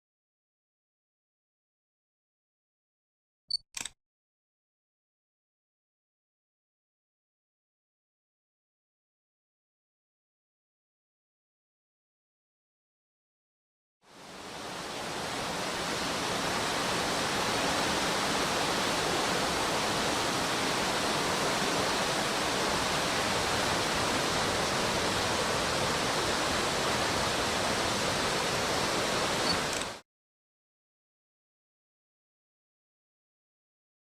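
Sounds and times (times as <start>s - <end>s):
stream rushing over rocks: 14.1s - 30.0s.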